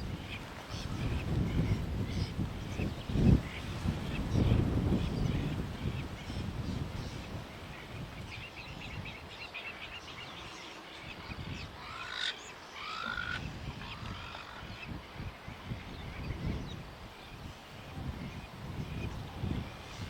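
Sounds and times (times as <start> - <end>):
wind rumbling on microphone: 0.0 - 12.0, 12.8 - 20.0
short arching bird calls: 11.8 - 14.6.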